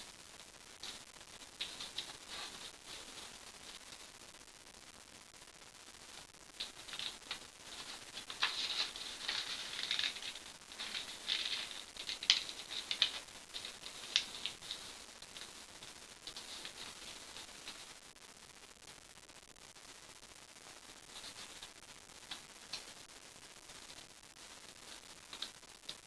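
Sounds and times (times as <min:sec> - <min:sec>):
paper rustling and crackling: 0:01.6 - 0:03.4, 0:06.6 - 0:17.8.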